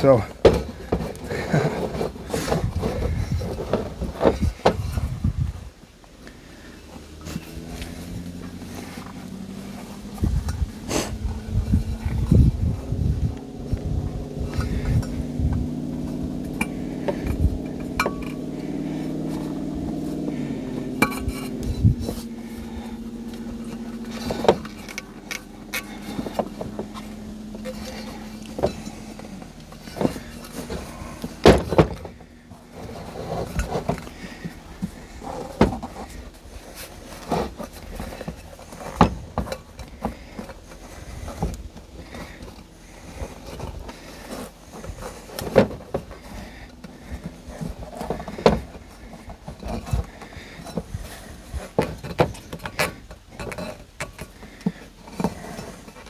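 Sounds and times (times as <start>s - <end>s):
vehicle engine running: 0.0s - 56.0s
sharp knocks and clanks: 13.2s - 36.3s.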